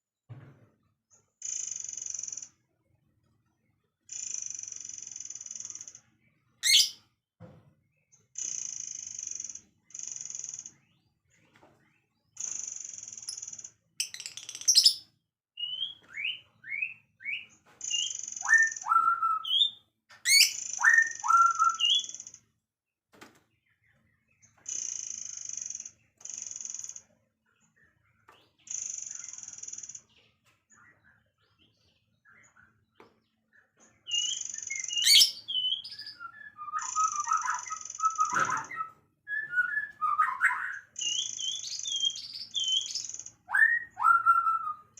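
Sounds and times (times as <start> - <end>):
songbird trills and whistles: 6.6 - 7.0, 14.0 - 22.2, 34.0 - 44.9.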